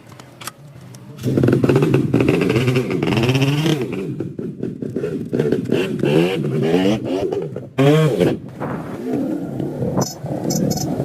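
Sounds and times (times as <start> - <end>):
motorcycle engine revving: 1.2 - 10.9.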